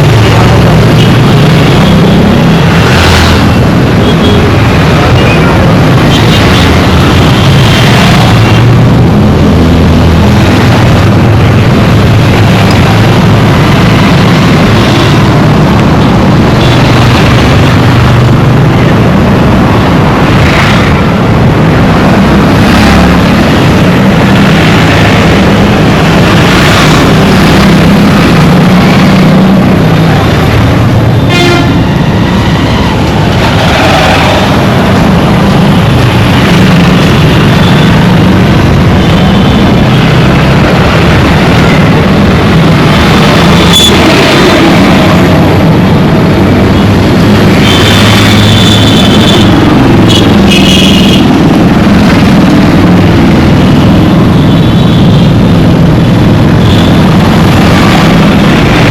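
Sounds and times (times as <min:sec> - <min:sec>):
road traffic engines and tyres: 0:00.0 - 0:58.9
car horns honking: 0:31.2 - 0:33.2.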